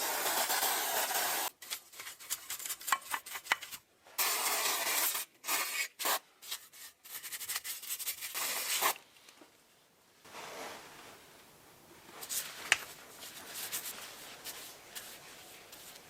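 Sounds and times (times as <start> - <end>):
hand rubbing and scraping: 12.1 - 16.0.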